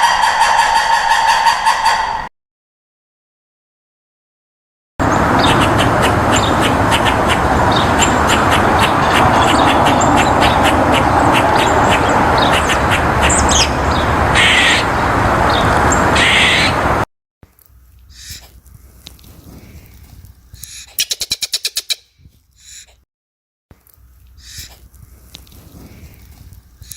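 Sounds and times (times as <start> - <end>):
crowd of birds calling: 0.0 - 2.3, 5.0 - 17.0.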